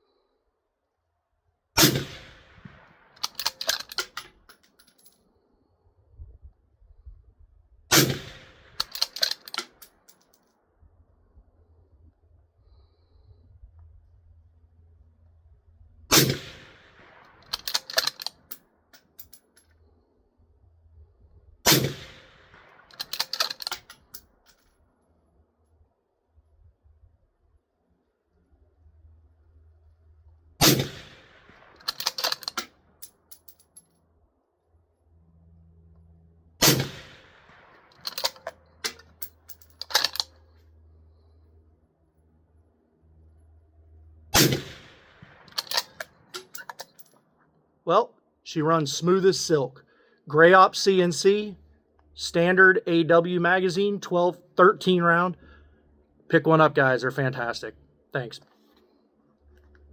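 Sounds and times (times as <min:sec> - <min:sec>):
rifle shots: 0:01.8 - 0:03.9, 0:07.9 - 0:09.4, 0:16.1 - 0:18.3, 0:21.7 - 0:23.7, 0:30.6 - 0:32.6, 0:36.6 - 0:38.4, 0:44.4 - 0:46.3
rifle bolt clicking: 0:03.2 - 0:04.3, 0:08.8 - 0:09.8, 0:17.4 - 0:18.6, 0:22.9 - 0:24.2, 0:31.8 - 0:32.7, 0:38.0 - 0:40.4, 0:45.5 - 0:47.0.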